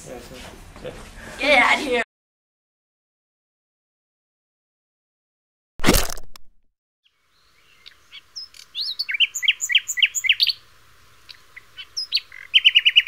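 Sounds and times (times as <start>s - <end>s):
songbird chirping: 7.0s - 13.0s.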